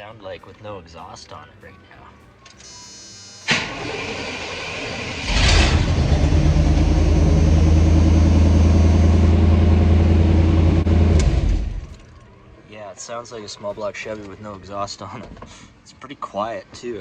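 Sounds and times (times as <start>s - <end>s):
starter motor cranking: 3.4s - 12.2s
car engine idling: 3.5s - 12.0s.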